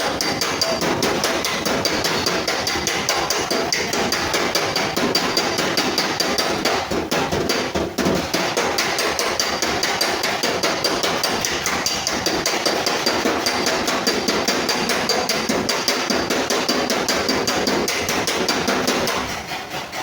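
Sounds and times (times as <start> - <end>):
hammer tapping sheet metal: 0.0 - 20.0.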